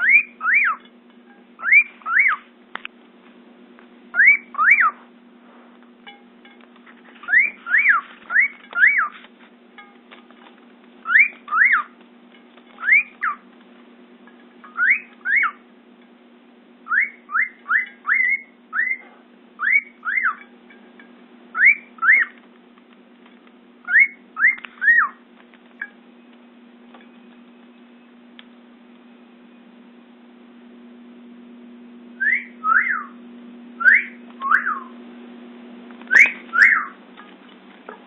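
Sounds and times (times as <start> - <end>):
cockatiel whistling song: 0.0 - 0.8, 1.6 - 2.5, 4.1 - 5.0, 7.2 - 9.2, 11.0 - 12.0, 12.8 - 13.4, 14.6 - 15.6, 16.8 - 20.5, 21.5 - 22.4, 23.8 - 25.2, 32.2 - 33.2, 33.8 - 35.0, 36.1 - 37.0
steady low hum: 0.0 - 38.0.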